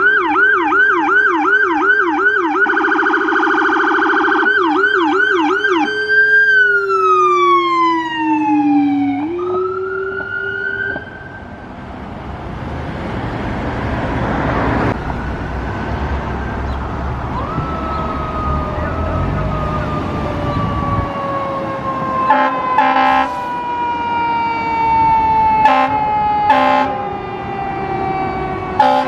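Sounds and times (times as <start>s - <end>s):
fire engine siren: 0.0s - 29.0s
vehicle passing: 6.3s - 29.0s.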